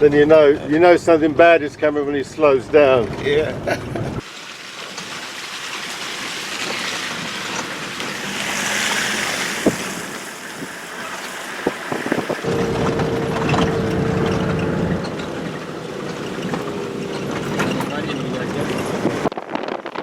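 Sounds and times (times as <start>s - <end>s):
wind and road noise hiss: 4.2s - 14.8s
steady hum: 12.4s - 17.4s
low rumble: 12.4s - 17.7s.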